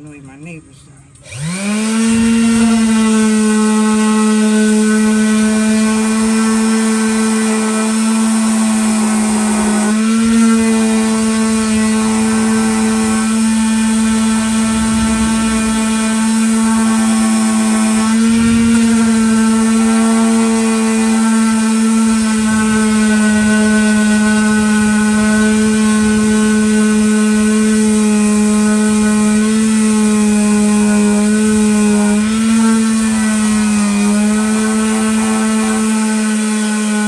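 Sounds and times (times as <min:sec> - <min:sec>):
electric sander on wood: 0:01.2 - 0:37.0.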